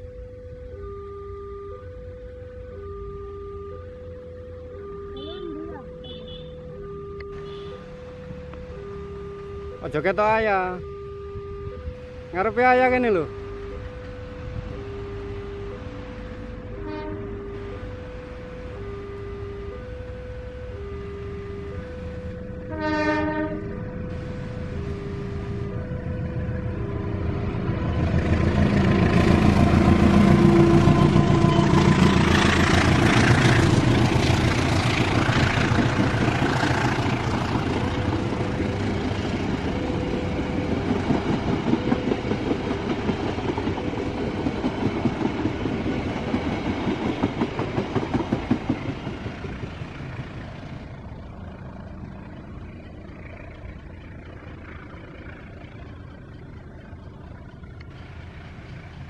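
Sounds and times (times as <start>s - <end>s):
locomotive engine: 0.0s - 59.0s
train wheels clickety-clack: 28.8s - 50.6s.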